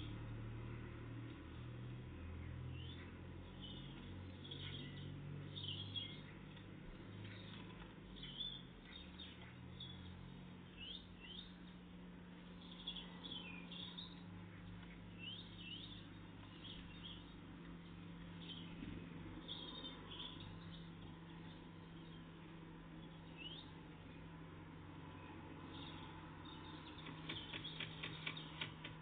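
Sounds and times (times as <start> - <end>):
small songbirds chirping: 0.0 - 29.0.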